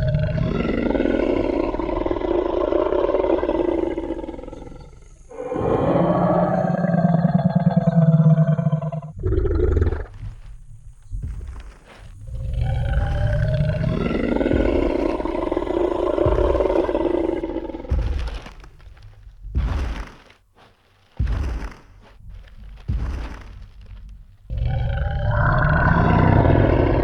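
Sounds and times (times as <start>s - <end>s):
deep dinosaur roar: 0.0s - 10.4s, 11.5s - 19.0s, 24.5s - 27.0s
heavy giant footsteps thudding: 9.2s - 27.0s.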